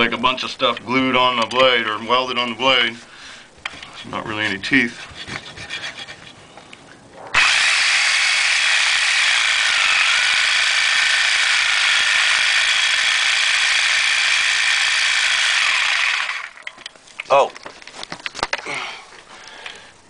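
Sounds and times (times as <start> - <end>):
reciprocating saw cutting metal pipe: 7.3 - 16.6.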